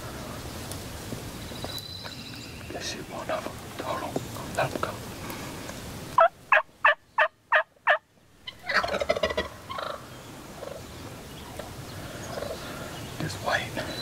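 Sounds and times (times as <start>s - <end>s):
turkey gobbling: 6.2s - 10.0s, 10.6s - 10.8s, 12.3s - 12.6s
turkey yelps: 6.2s - 10.0s
soft turkey calls: 6.2s - 13.9s.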